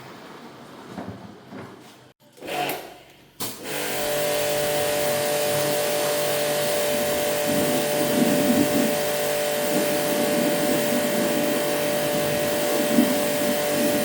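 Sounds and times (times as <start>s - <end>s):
electric motor humming: 3.7s - 14.0s.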